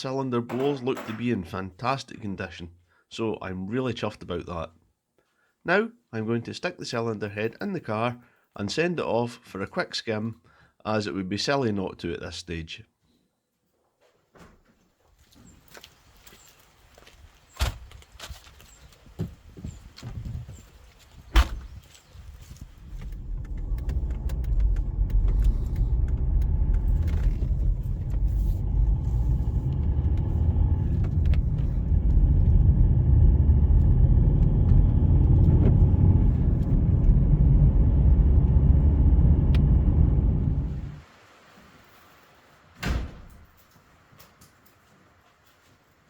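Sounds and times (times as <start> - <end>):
car low rumble: 19.7 - 41.0.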